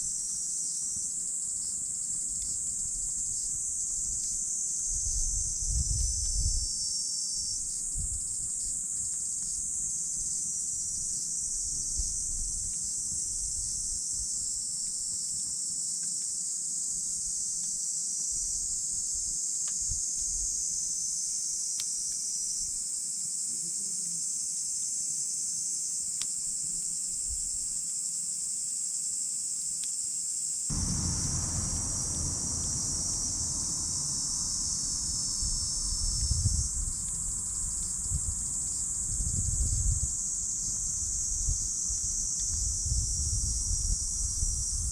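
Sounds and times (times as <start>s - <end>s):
campfire crackling: 30.7s - 38.9s
low rushing noise: 30.7s - 39.2s
crickets trilling: 30.7s - 44.9s.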